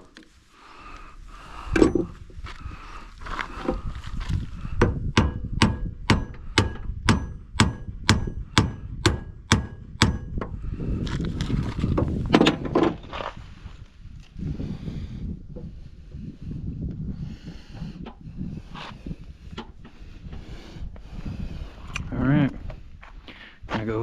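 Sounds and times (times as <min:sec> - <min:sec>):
hammer striking metal: 0:05.2 - 0:10.3.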